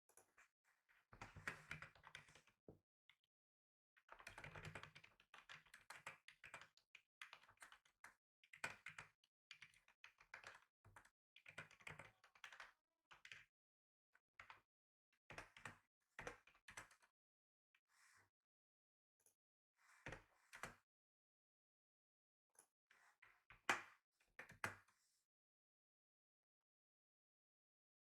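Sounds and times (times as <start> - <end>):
faint keyboard typing: 4.2 - 13.4.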